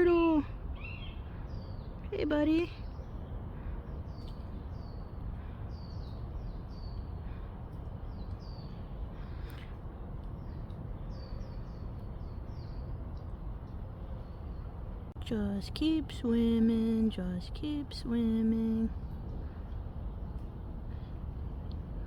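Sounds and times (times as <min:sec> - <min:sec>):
songbird chirping: 0:00.0 - 0:21.8
steady low rumble: 0:00.0 - 0:22.0.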